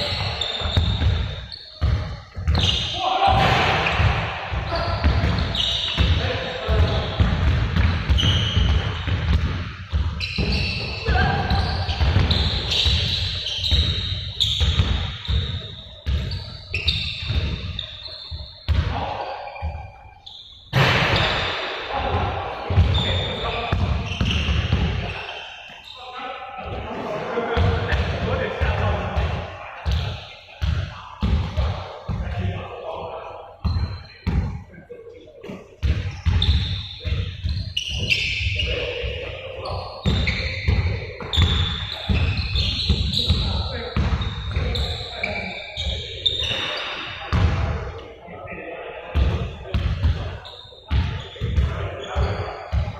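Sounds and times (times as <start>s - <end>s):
short high squeaks: 0.0s - 1.8s, 4.7s - 6.1s, 16.3s - 18.7s
basketballs bouncing: 0.0s - 19.9s, 20.7s - 25.3s, 27.5s - 32.6s, 33.6s - 34.7s, 35.8s - 47.8s, 49.1s - 52.9s.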